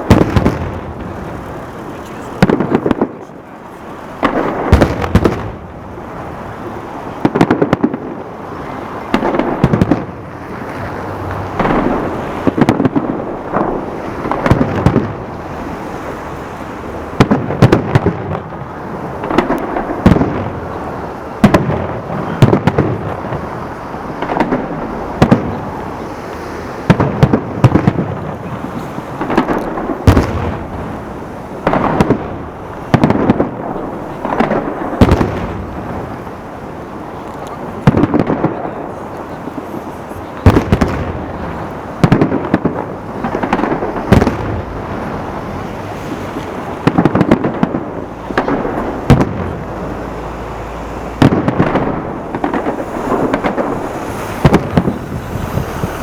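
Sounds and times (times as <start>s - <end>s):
rumbling echo: 4.2s - 15.4s, 40.5s - 56.0s
fireworks shells bursting: 9.0s - 15.2s, 40.2s - 56.0s.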